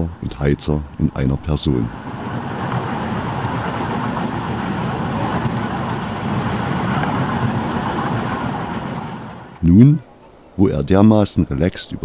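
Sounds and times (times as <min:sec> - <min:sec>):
train wheels rumbling on rails: 0:01.9 - 0:09.6.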